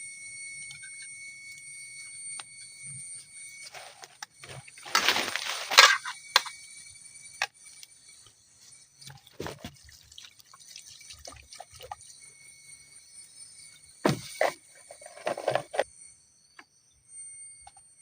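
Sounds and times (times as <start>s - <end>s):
dripping: 9.1s - 12.1s
liquid pouring: 9.3s - 12.0s.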